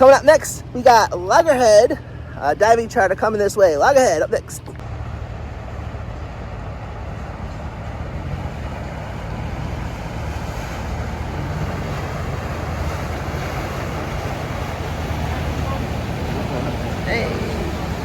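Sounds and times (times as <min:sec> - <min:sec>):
boat engines rumbling: 0:00.0 - 0:18.0.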